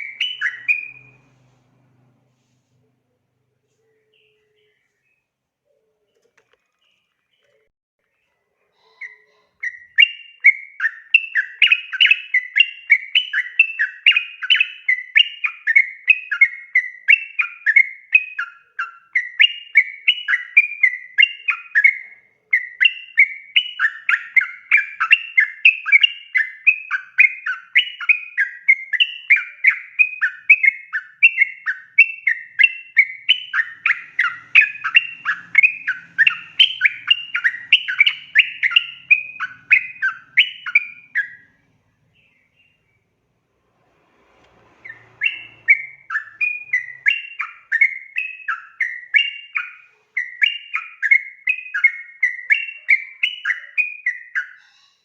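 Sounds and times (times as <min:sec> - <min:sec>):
bird singing quick short notes: 0:44.8 - 0:48.0.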